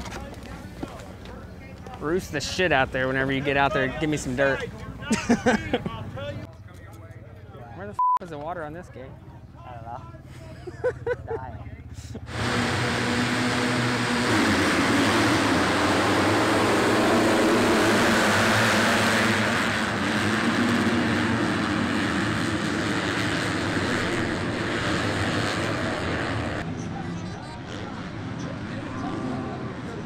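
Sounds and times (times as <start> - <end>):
dirt bike engines revving: 8.6 - 30.0.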